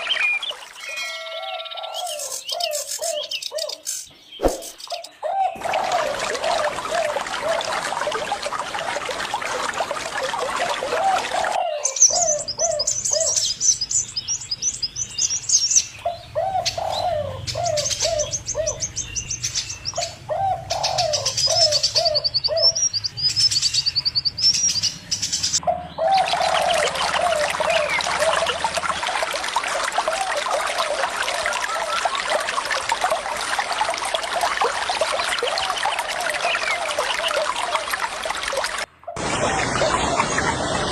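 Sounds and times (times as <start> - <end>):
running water: 0.0 - 2.2, 4.4 - 14.3, 26.0 - 40.9
low dove-like bird calls: 16.0 - 18.9, 19.9 - 22.8, 25.6 - 28.6.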